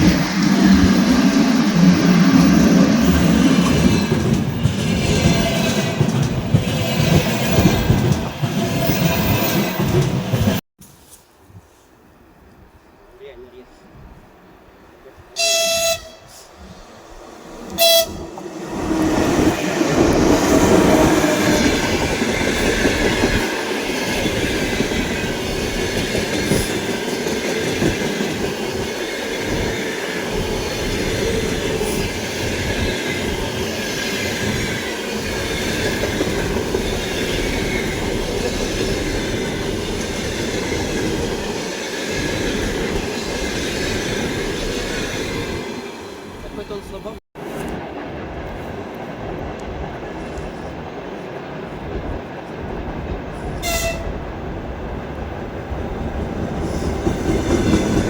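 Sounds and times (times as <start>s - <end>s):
train wheels on rails: 0.0s - 11.9s, 15.1s - 58.0s
high-pitched train horn blasts: 15.4s - 16.6s, 17.7s - 18.3s, 53.6s - 54.2s.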